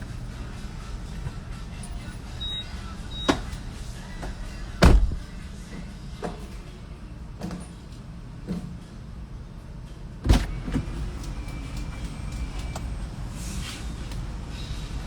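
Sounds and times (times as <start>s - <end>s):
car rumbling: 0.0s - 5.7s
loud thump: 4.8s - 5.3s.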